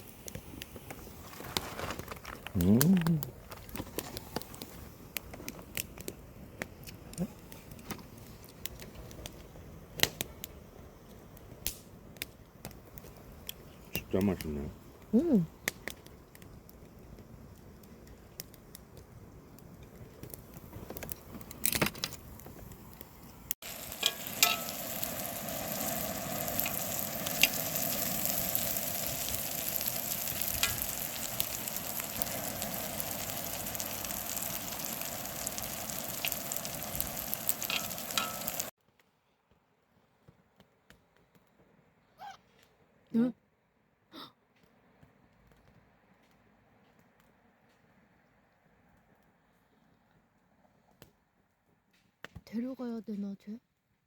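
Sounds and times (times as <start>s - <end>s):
food frying and sizzling: 0.0s - 11.2s, 12.6s - 38.8s.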